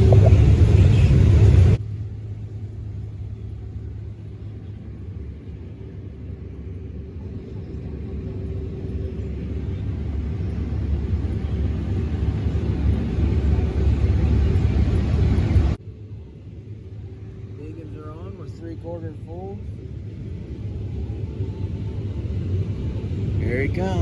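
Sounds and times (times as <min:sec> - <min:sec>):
heavy engine rumbling: 0:00.0 - 0:24.0.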